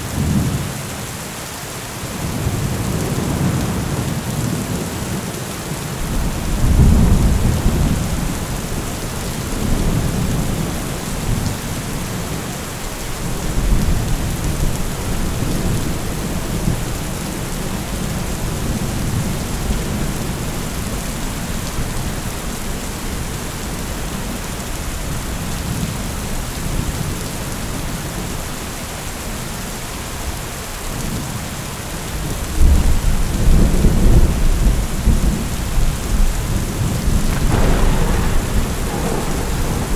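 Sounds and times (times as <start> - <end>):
heavy rain: 0.0 - 39.9
thunder rumbling: 6.0 - 22.4, 32.6 - 39.9.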